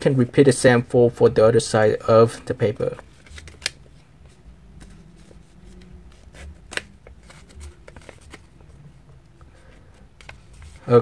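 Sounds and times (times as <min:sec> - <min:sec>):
paper rustling: 0:02.7 - 0:08.8, 0:09.5 - 0:11.0
paper snap: 0:06.6 - 0:06.9.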